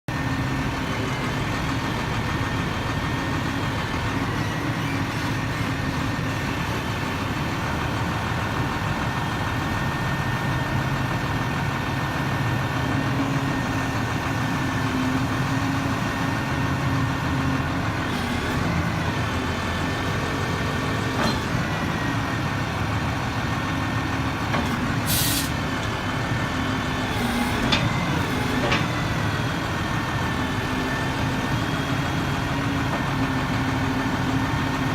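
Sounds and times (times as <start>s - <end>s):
diesel engine idling: 0.1s - 34.9s
short hiss: 25.1s - 25.6s.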